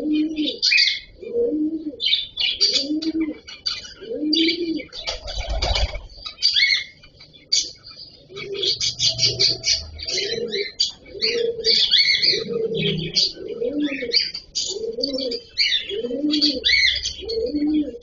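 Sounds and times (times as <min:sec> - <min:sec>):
cockatiels chirping: 0:00.0 - 0:01.2, 0:02.0 - 0:18.0
doves cooing: 0:00.0 - 0:18.0
wings flapping: 0:05.0 - 0:06.2.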